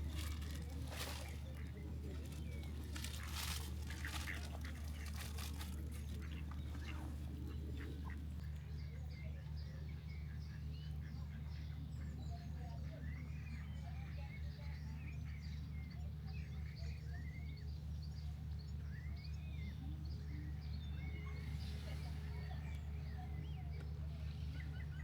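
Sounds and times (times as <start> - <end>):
steady low rumble: 0.0 - 8.4.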